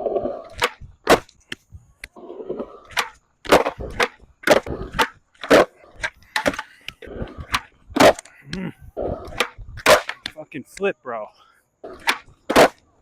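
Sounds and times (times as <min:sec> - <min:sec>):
skateboard wheels rolling: 0:00.0 - 0:10.4, 0:11.8 - 0:13.0
skateboard clacks and slaps: 0:00.4 - 0:02.2, 0:02.9 - 0:08.3, 0:09.1 - 0:10.4, 0:11.9 - 0:12.9.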